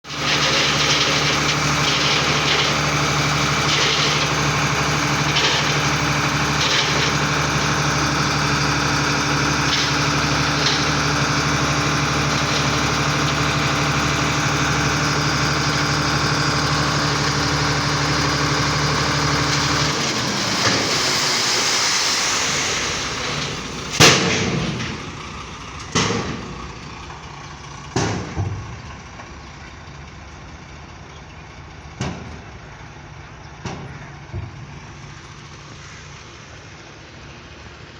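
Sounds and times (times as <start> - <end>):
diesel truck engine running: 0.0 - 37.9
hiss: 20.5 - 24.3
sharp bangs: 20.5 - 26.7.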